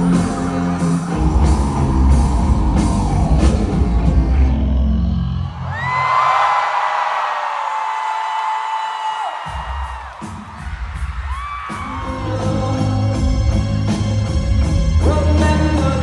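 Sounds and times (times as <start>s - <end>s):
live rock band with drums: 0.0s - 4.6s, 9.4s - 16.0s
bass guitar: 0.0s - 5.5s, 11.7s - 16.0s.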